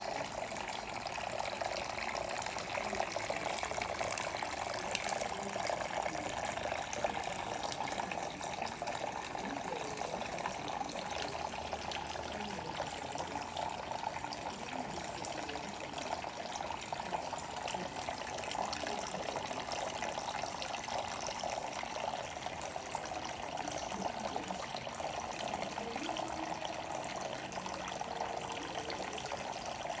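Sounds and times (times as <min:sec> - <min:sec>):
fountain water splashing: 0:00.0 - 0:30.0.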